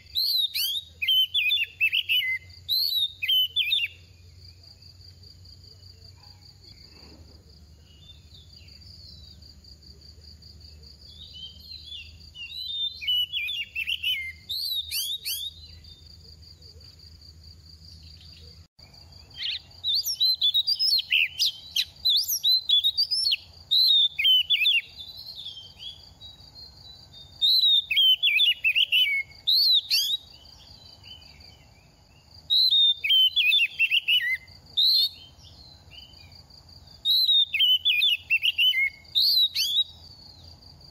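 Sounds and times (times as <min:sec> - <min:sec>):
bird singing whistled phrases: 0:00.0 - 0:04.3, 0:11.1 - 0:16.0, 0:19.3 - 0:31.4, 0:32.5 - 0:36.2, 0:37.0 - 0:40.1.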